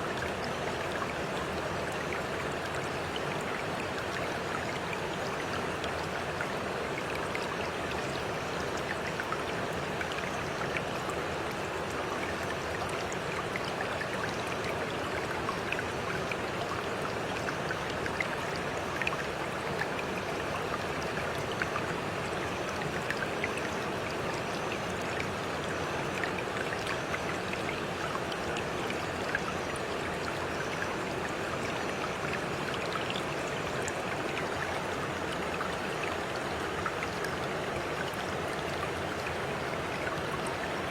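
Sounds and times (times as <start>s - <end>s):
stream water running: 0.0s - 40.9s.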